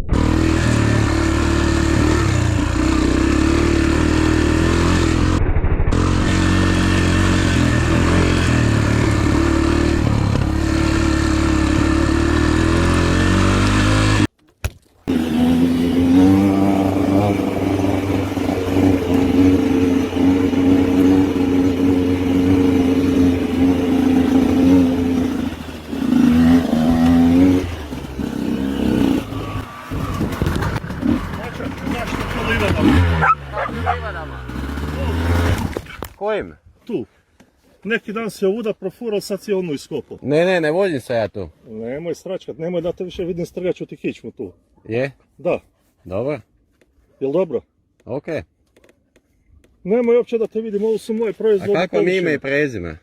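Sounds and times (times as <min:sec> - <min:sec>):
motorcycle engine revving: 0:00.0 - 0:14.3, 0:15.1 - 0:36.1
motorcycle engine running: 0:00.0 - 0:14.3, 0:15.1 - 0:35.9.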